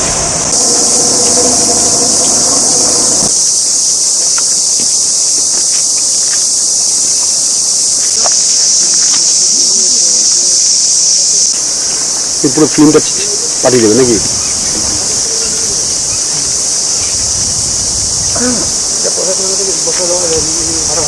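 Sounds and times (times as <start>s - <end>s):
low machine hum: 0.0s - 3.3s
insects buzzing: 0.0s - 21.0s.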